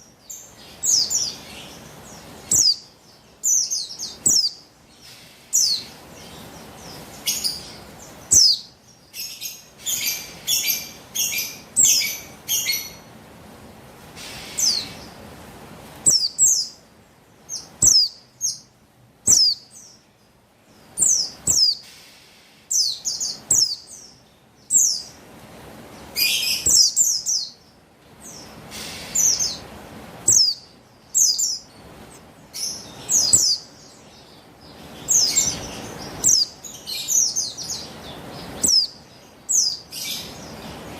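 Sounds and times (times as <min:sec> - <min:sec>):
bird high chirps sliding down: 0:16.0 - 0:16.7, 0:30.3 - 0:33.8, 0:35.0 - 0:40.4.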